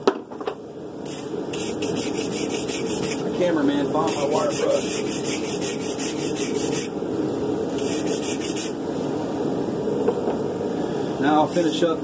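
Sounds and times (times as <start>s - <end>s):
wire brush scrubbing steel: 1.1s - 3.3s, 4.0s - 7.0s, 7.8s - 8.8s.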